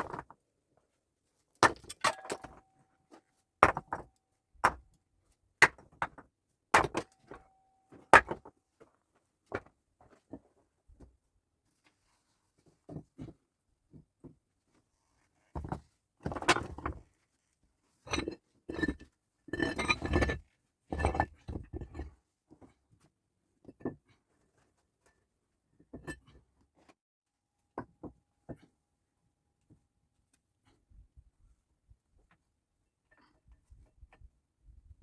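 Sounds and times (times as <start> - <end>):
hard objects clinking and clattering: 1.6 - 2.6.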